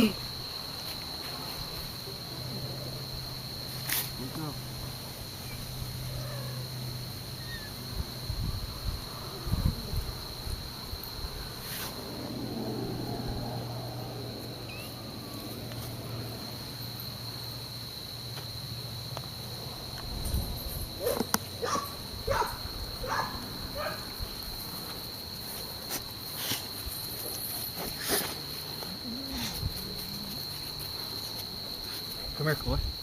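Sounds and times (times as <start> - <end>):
insect trill: 0.0 - 33.0.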